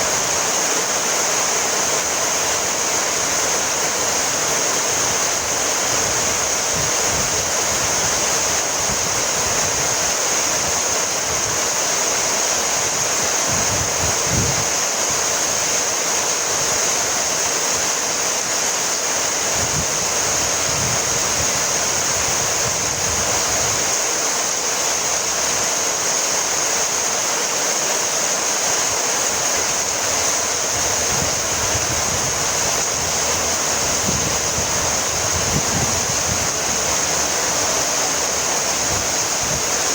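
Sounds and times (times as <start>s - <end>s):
heavy rain: 0.0s - 39.9s
low rumbles: 30.1s - 39.7s.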